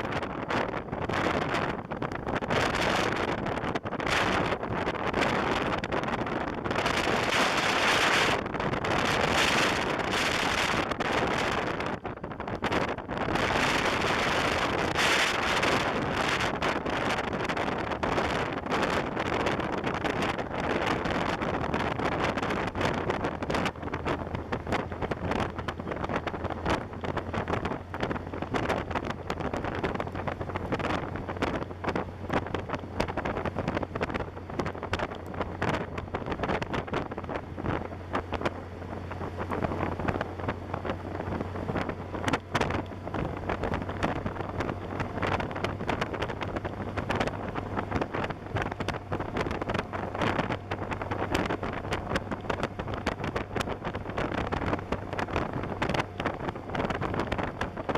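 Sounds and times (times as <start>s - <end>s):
motorcycle engine drone: 0.0s - 57.9s
wind buffeting microphone: 0.0s - 57.9s.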